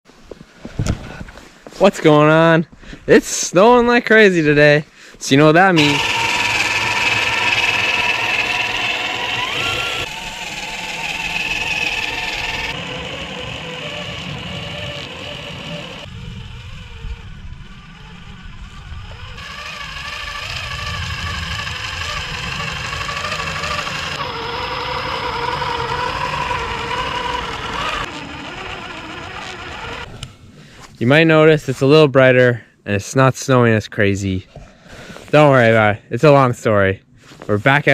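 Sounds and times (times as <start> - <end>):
rc crawler motor whining: 5.8 - 30.3.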